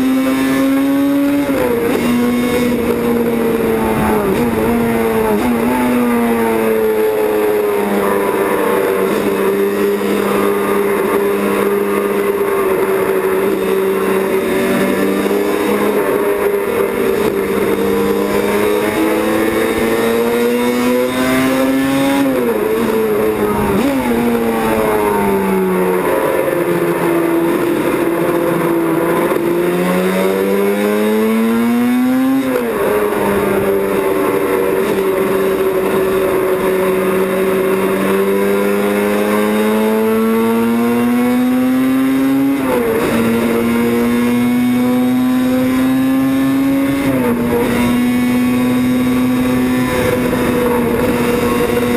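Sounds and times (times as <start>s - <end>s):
racing motorcycle engine revving: 0.0s - 51.9s.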